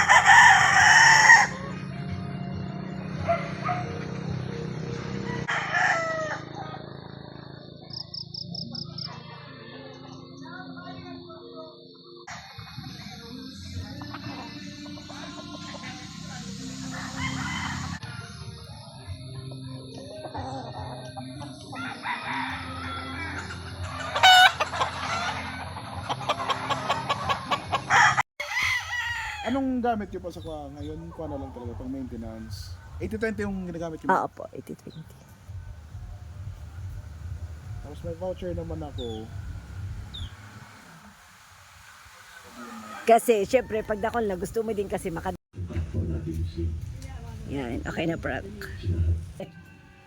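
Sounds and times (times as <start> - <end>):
roosters crowing: 0.0 - 1.8, 3.2 - 8.2, 13.1 - 19.2, 20.1 - 34.2, 39.0 - 45.3.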